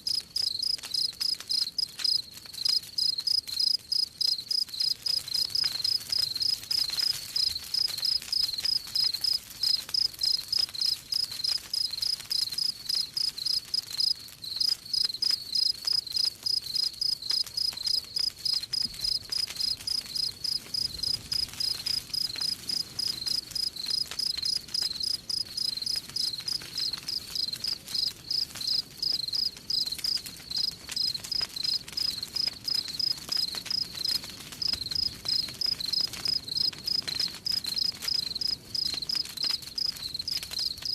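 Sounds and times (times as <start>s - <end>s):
campfire crackling: 0.0s - 40.9s
crickets chirping: 0.1s - 5.0s, 9.2s - 26.3s, 27.1s - 31.8s.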